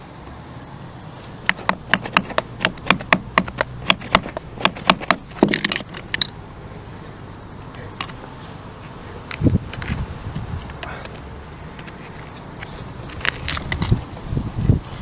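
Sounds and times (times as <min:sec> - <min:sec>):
sharp taps: 0:01.4 - 0:06.3.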